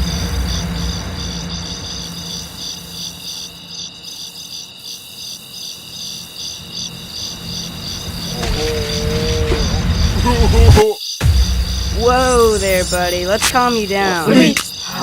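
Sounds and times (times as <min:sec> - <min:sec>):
low rumble: 0:00.0 - 0:03.7, 0:06.8 - 0:14.6
crickets chirping: 0:00.0 - 0:15.0.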